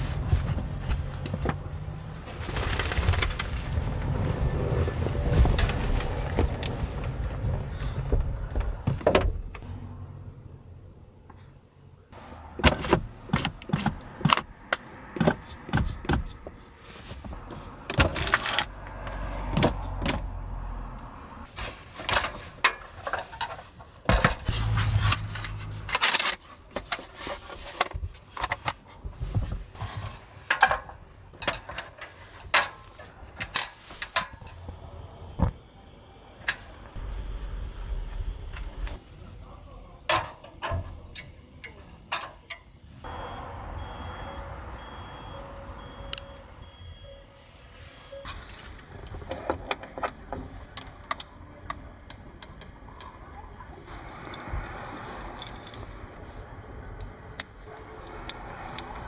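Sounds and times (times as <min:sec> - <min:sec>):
low rumble: 0:24.5 - 0:26.0, 0:36.9 - 0:39.0.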